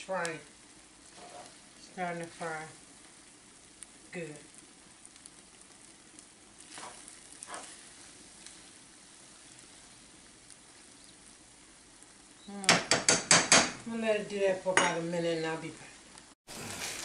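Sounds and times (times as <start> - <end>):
corn sizzling in a skillet: 0.0 - 17.0
spoon stirring: 1.1 - 1.6, 6.6 - 8.1.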